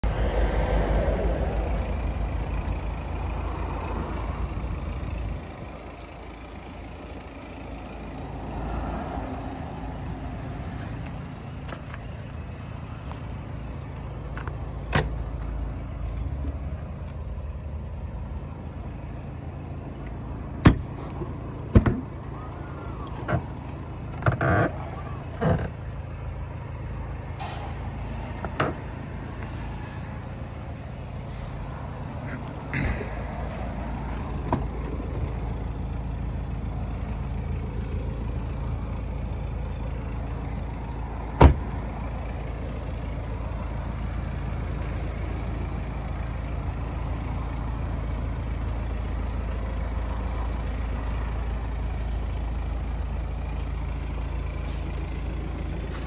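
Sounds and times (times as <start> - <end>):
diesel engine idling: 0.0 - 56.0
tailgate clicks and knocks: 20.6 - 22.1, 28.4 - 28.8, 41.4 - 41.8.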